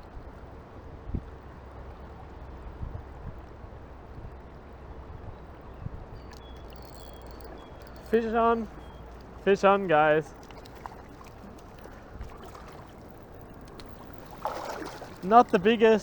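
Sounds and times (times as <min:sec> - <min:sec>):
stream water rushing: 0:06.6 - 0:16.0.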